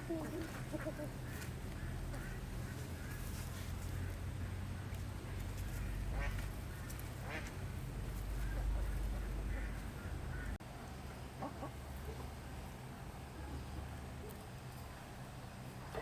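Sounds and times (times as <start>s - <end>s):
waterfowl calling: 8.3s - 10.6s.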